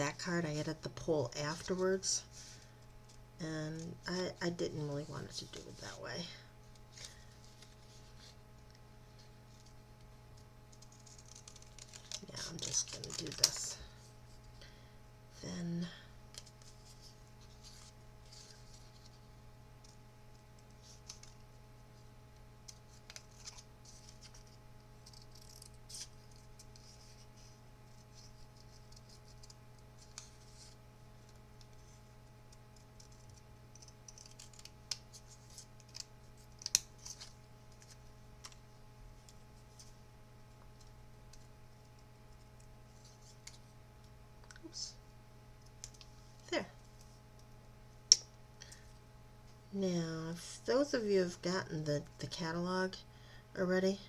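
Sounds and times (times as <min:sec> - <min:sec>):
scissors snipping paper: 0:10.8 - 0:13.7, 0:32.5 - 0:38.6.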